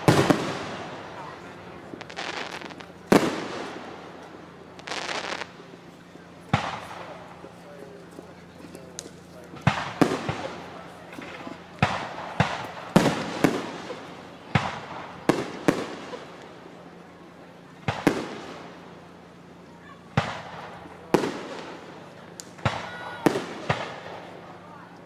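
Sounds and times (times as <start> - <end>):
fireworks booms: 0.0 - 5.8, 6.4 - 7.6, 9.0 - 16.6, 17.8 - 18.9, 20.1 - 24.6.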